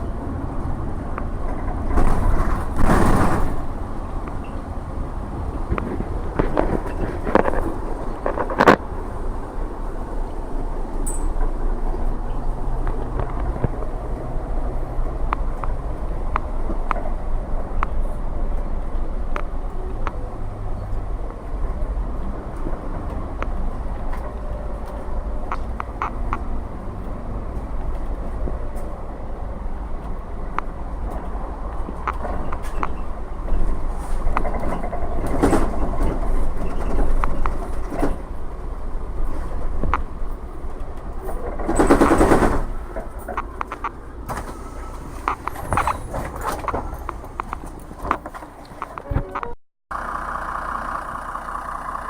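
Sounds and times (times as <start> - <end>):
bus diesel engine rumble: 0.0 - 52.0
road noise: 0.0 - 52.0
body rattles and knocks: 5.5 - 9.1, 31.0 - 38.6, 39.6 - 44.0, 45.3 - 49.0.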